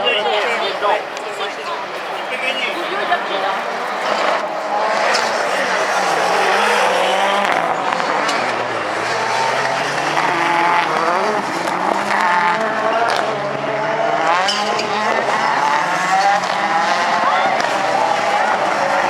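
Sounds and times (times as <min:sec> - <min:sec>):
racing car engines revving: 0:00.0 - 0:19.0.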